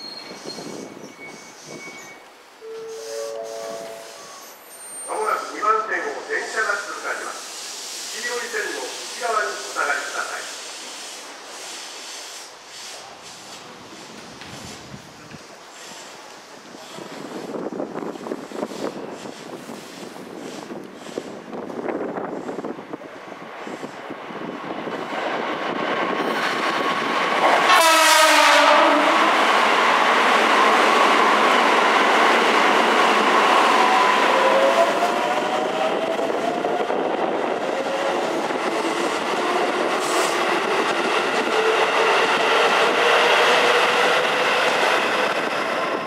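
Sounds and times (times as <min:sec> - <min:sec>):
train horn blast: 0:02.6 - 0:04.4, 0:27.6 - 0:29.3.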